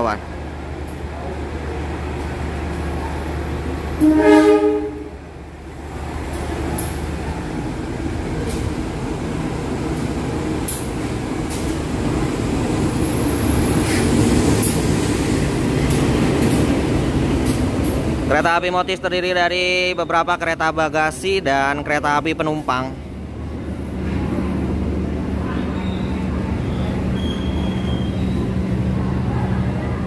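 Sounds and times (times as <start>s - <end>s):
train engine and rolling wheels: 0.0s - 30.0s
locomotive horn blast: 4.0s - 5.2s
train wheel clicks: 10.0s - 11.8s.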